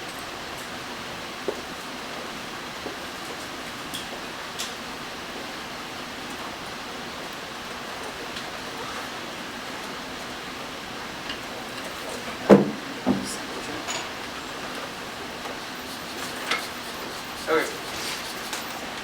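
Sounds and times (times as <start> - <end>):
room noise hiss: 0.0 - 19.0
loud knock: 12.5 - 13.4.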